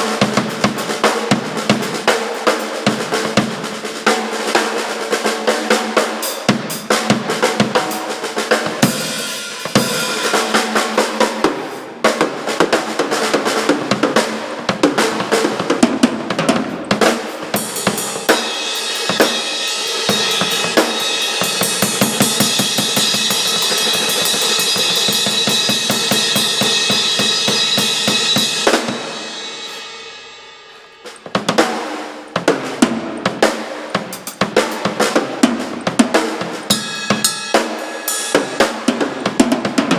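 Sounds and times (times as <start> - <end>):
drum kit: 0.0 - 39.9
rock band playing: 4.7 - 39.9
cymbal wash: 5.8 - 12.0, 17.1 - 32.4, 36.3 - 39.4.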